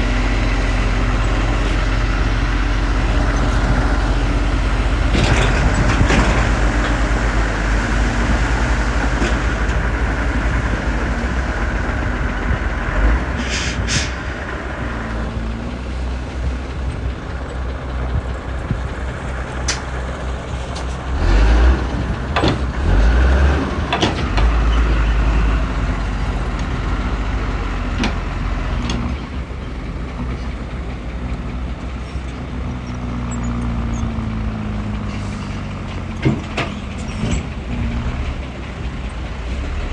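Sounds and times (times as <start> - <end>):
diesel machinery engine drone: 0.0 - 39.9
air hiss: 13.4 - 14.2.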